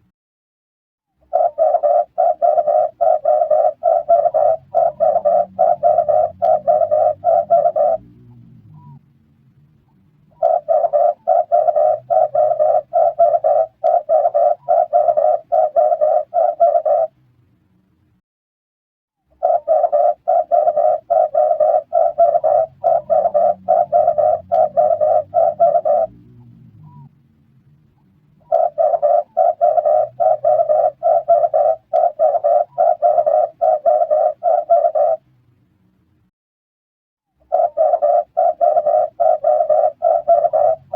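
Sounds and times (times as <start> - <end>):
dove cooing: 1.2 - 9.0, 10.3 - 17.2, 19.4 - 27.1, 28.4 - 35.2, 37.4 - 40.9.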